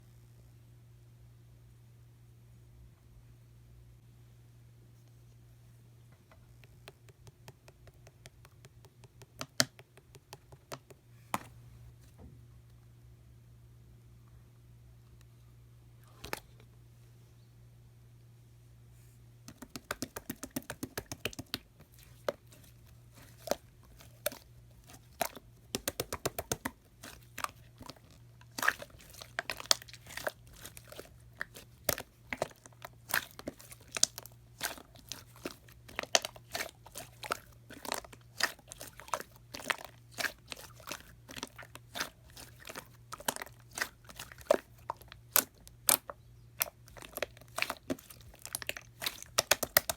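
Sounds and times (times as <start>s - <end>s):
slime clicking and popping: 19.5s - 49.9s.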